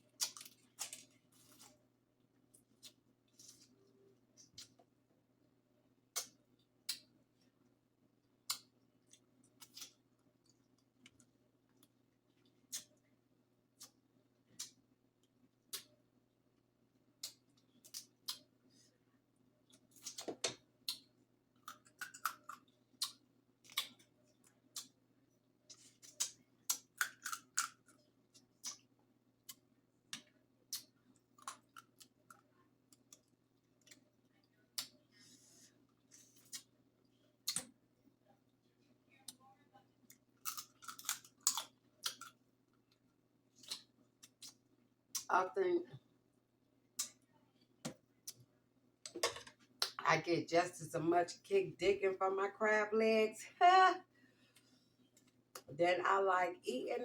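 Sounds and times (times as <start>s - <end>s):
faint steady hum: 0.0s - 57.0s
eating clicks and cracks: 0.1s - 1.7s, 8.4s - 13.0s, 17.2s - 18.5s, 19.7s - 25.0s, 26.0s - 34.1s, 37.4s - 37.8s, 40.1s - 43.0s, 43.6s - 45.3s, 47.0s - 47.2s
crab shells cracking by hand: 19.7s - 24.1s, 26.0s - 28.0s, 40.4s - 42.4s.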